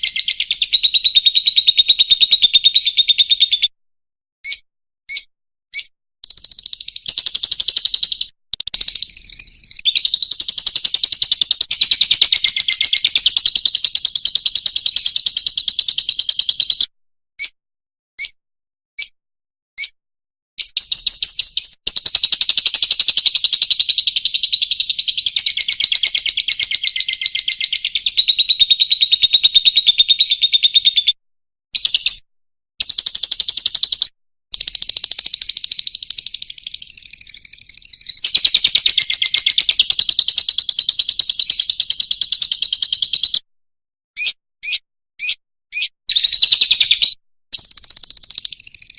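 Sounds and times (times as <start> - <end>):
lovebird chattering twitter: 4.4 - 16.8, 20.6 - 31.0, 32.8 - 43.4, 44.2 - 48.9.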